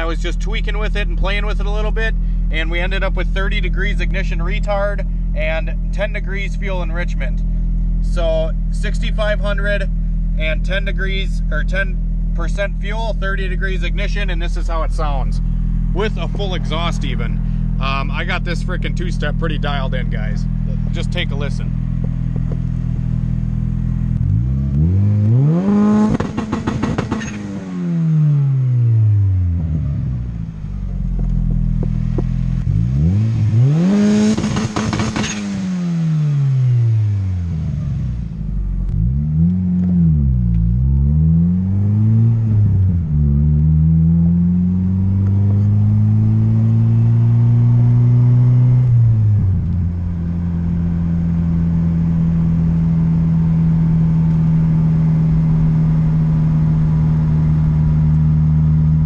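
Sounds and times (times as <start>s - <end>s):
car engine revving: 0.0s - 59.0s
exhaust crackles and pops: 13.4s - 27.6s, 30.7s - 33.3s, 34.2s - 35.6s, 38.6s - 41.2s, 45.1s - 46.7s, 49.4s - 59.0s.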